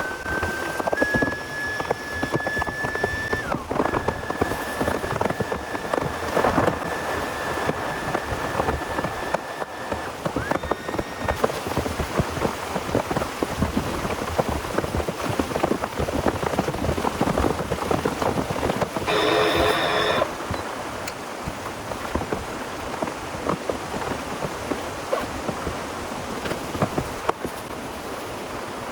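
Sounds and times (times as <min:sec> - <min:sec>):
thin steady high tone: 0:19.1 - 0:20.4.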